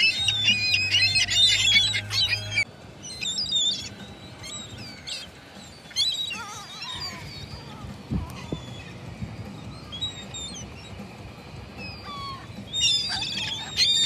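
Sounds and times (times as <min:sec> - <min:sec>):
gulls calling: 0:00.0 - 0:14.0.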